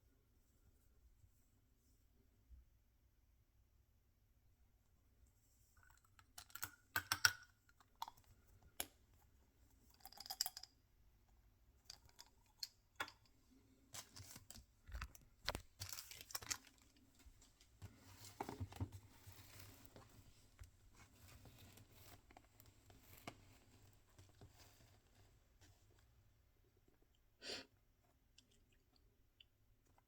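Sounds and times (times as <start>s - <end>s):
packaging crinkling and tearing: 15.1s - 16.9s.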